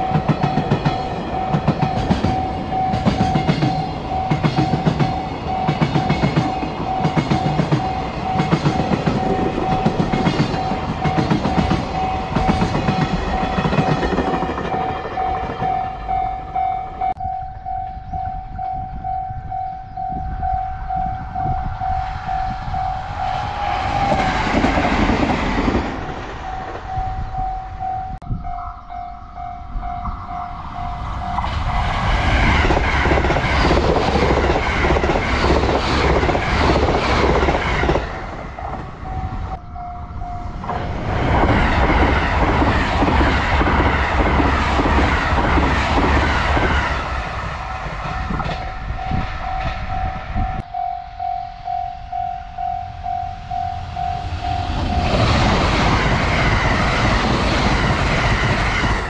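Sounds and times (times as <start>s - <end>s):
level crossing bell ringing: 0.0s - 13.6s, 15.2s - 23.1s, 49.1s - 55.3s
train wheels clattering on rails: 0.0s - 16.3s, 22.1s - 27.6s, 29.9s - 39.6s, 40.4s - 50.7s, 54.1s - 59.0s.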